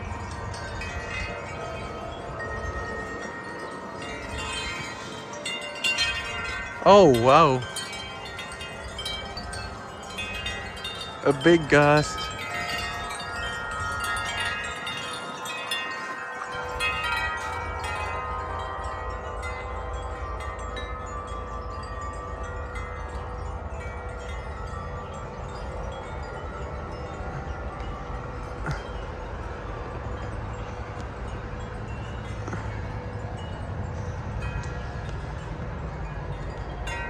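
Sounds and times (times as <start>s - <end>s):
low wind rumble: 0.0s - 37.0s
metal wind chimes ringing: 0.0s - 37.0s.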